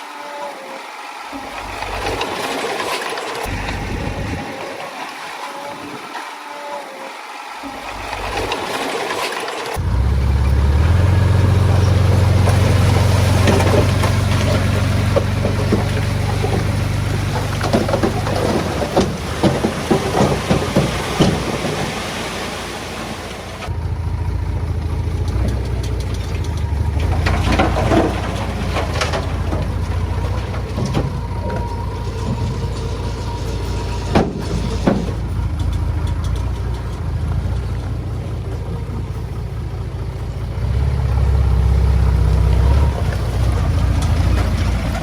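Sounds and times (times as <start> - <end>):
heavy diesel engine droning: 0.0 - 45.0
sharp clattering knocks: 11.7 - 22.2, 26.0 - 37.2.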